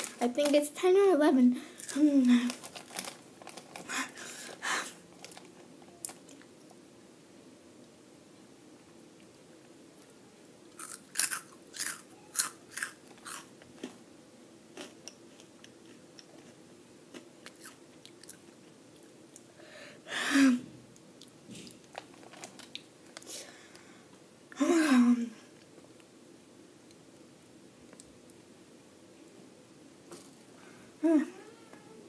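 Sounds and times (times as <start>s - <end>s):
crunchy snack chewing: 10.7s - 14.0s, 14.7s - 18.6s.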